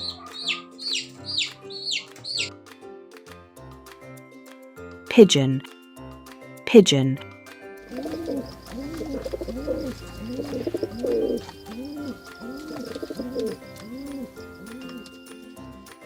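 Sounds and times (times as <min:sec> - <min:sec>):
pigeon cooing: 0:00.0 - 0:02.4, 0:07.8 - 0:16.0.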